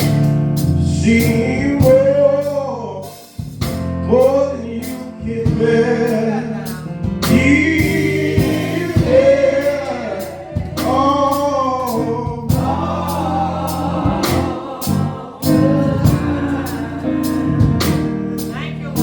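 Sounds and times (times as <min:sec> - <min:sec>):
gospel choir singing: 0:00.0 - 0:03.4, 0:04.3 - 0:19.0
bass line: 0:00.0 - 0:19.0
drum hits: 0:07.0 - 0:18.6.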